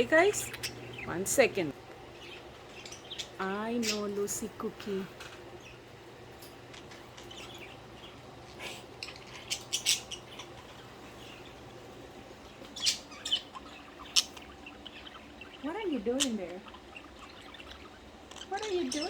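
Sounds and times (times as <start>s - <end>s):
budgerigars chirping: 0.0s - 19.0s
faint low steady hum: 0.0s - 19.0s.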